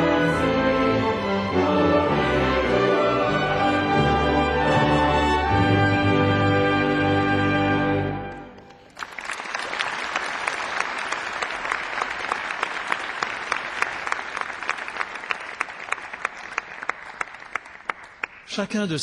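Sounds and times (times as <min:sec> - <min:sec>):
audience applauding: 0:08.3 - 0:18.6.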